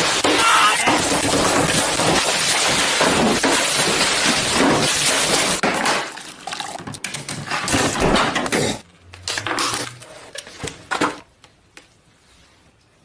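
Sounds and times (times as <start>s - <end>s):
hard objects clattering and crashing: 0.0s - 8.8s.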